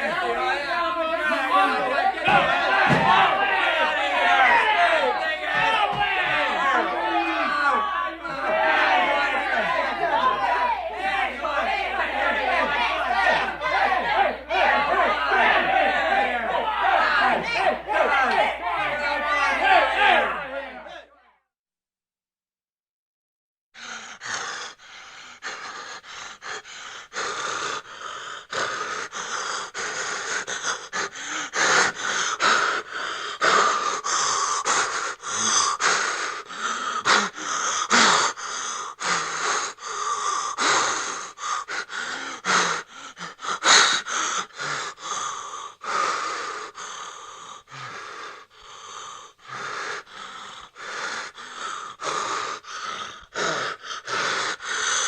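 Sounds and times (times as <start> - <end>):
fast ragged gasping breaths: 23.8 - 55.0.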